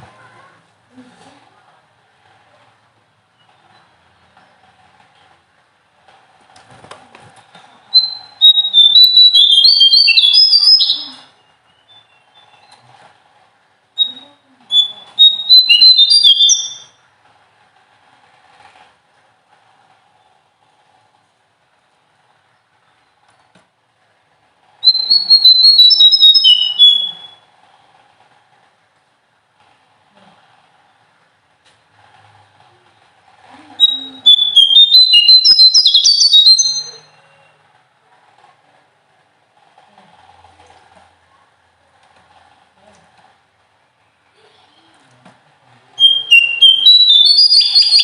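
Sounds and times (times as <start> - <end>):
songbird whistling song: 7.8 - 12.8, 14.0 - 17.0, 24.8 - 27.4, 33.8 - 37.5, 46.0 - 48.0.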